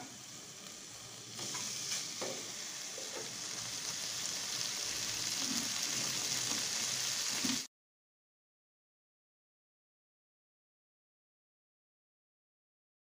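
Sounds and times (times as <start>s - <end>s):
vegetables sizzling in a metal pan: 0.0s - 7.7s.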